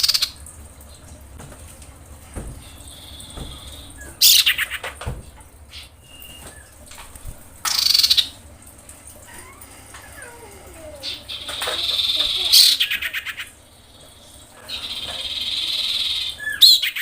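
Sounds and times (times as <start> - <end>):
faint whistled notes: 6.0 - 6.7.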